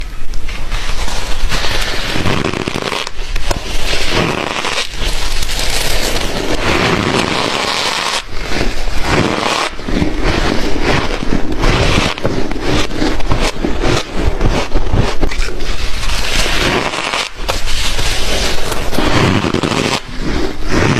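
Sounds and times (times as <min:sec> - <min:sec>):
ice being chewed: 0:10.2 - 0:17.0.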